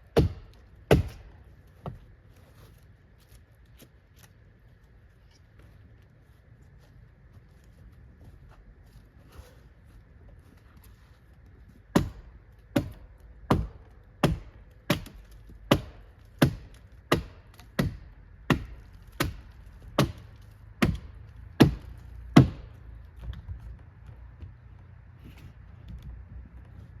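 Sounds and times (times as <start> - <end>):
axe chopping wood: 0.0 - 2.0, 11.9 - 23.5.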